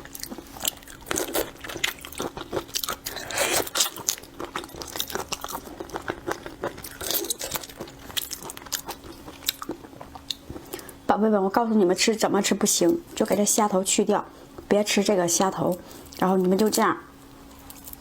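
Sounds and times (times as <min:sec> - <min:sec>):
crunching and chewing shrimp: 0:00.0 - 0:11.0, 0:17.5 - 0:18.0.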